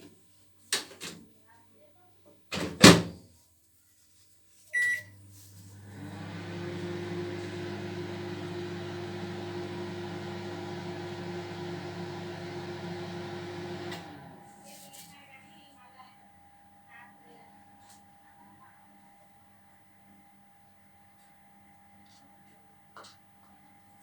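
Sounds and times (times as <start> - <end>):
keypad beep: 4.8 - 5.1
microwave oven humming: 4.8 - 14.6.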